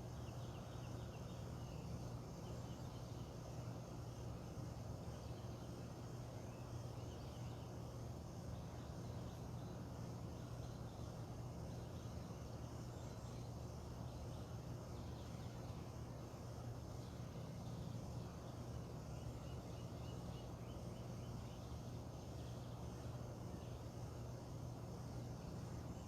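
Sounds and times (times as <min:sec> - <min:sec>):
insects: 0:00.0 - 0:26.0
steady low hum: 0:00.0 - 0:26.0
faint bird chirps: 0:05.1 - 0:07.9, 0:17.0 - 0:23.9.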